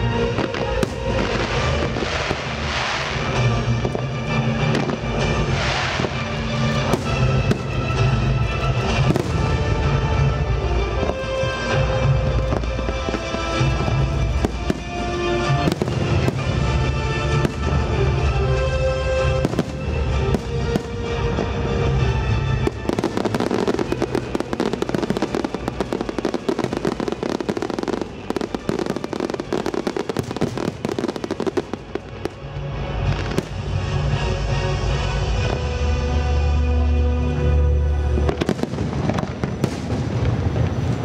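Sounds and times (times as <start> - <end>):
firework bangs: 0.0 - 10.0, 11.0 - 21.6, 22.5 - 32.4, 38.2 - 41.0
fireworks crackling and popping: 0.0 - 34.2, 38.1 - 41.0
music soundtrack: 0.0 - 41.0.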